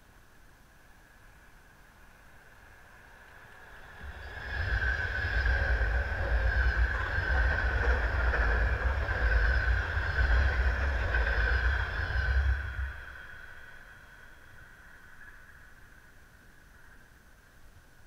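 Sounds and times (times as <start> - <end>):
high whine: 0.9 - 18.0
train deep rumble: 2.0 - 17.0.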